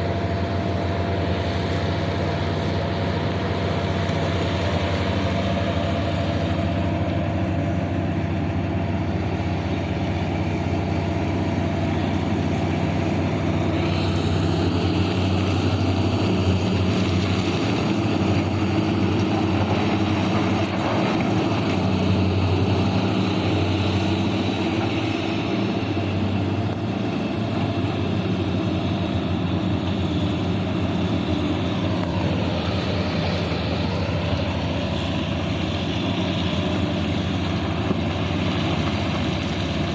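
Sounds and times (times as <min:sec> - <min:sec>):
diesel dump truck engine droning: 0:00.0 - 0:39.9.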